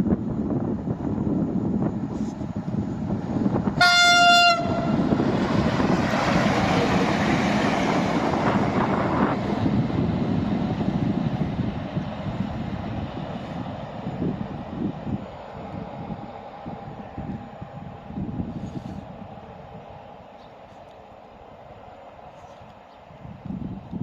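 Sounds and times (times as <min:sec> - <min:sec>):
train rumbling on rails: 0:00.0 - 0:24.0
locomotive horn blast: 0:03.8 - 0:05.2.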